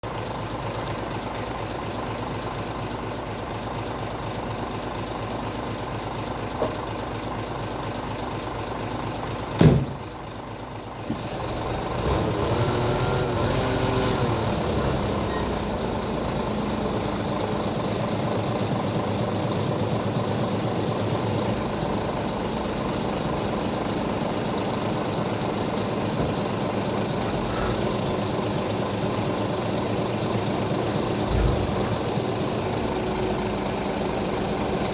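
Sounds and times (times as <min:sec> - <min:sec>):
diesel truck engine idling: 0:00.0 - 0:34.9
engine revving up: 0:11.4 - 0:15.2.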